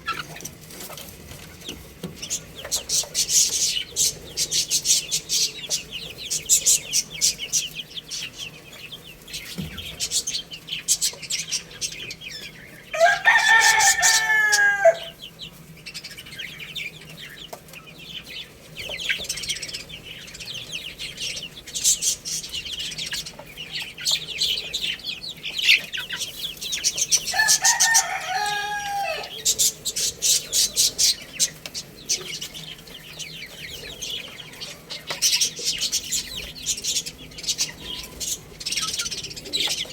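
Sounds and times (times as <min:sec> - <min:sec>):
chicks chirping: 0:00.0 - 0:39.9
rooster crowing: 0:12.9 - 0:15.2, 0:27.3 - 0:29.5.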